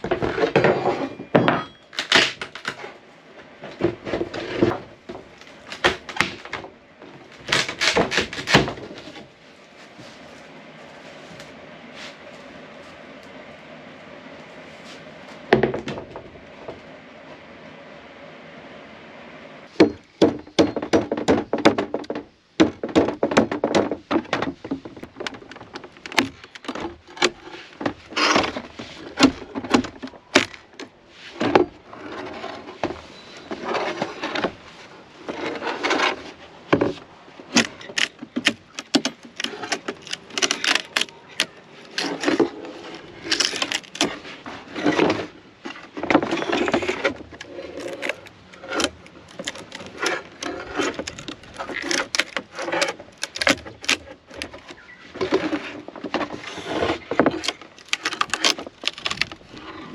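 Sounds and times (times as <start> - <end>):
wooden knocks and clatter: 15.5 - 16.8, 19.8 - 34.6, 35.2 - 59.8.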